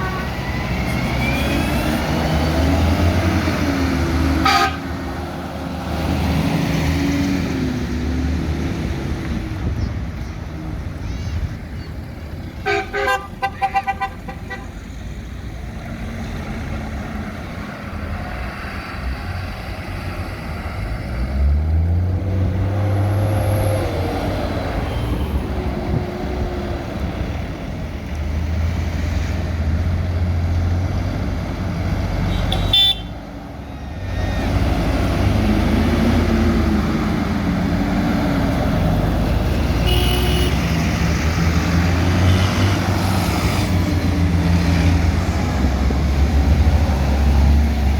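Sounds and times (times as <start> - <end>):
tractor and truck engines passing: 0.0 - 47.9
vehicle horn short blasts: 32.3 - 33.1, 39.8 - 40.6.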